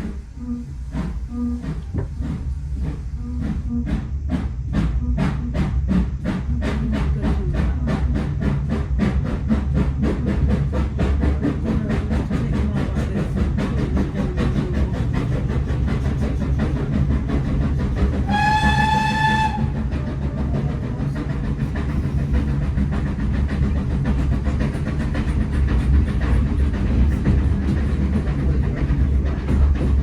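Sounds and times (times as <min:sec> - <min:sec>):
steam locomotive exhaust beats: 0:00.0 - 0:30.0
steam whistle blast: 0:18.3 - 0:19.8.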